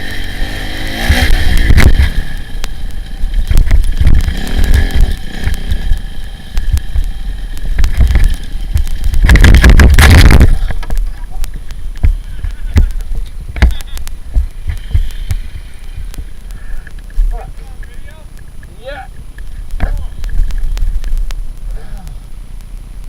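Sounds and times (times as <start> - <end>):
dirt bike engine revving: 0.0 - 16.5
wind noise on microphone: 3.2 - 5.9, 6.6 - 11.1.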